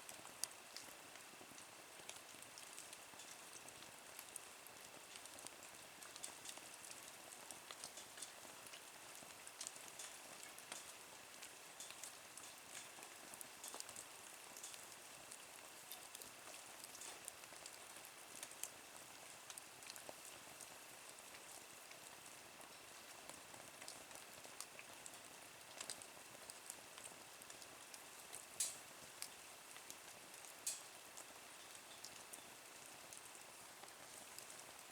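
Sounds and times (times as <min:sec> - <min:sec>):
wood fire crackling in stove: 0:00.0 - 0:34.9.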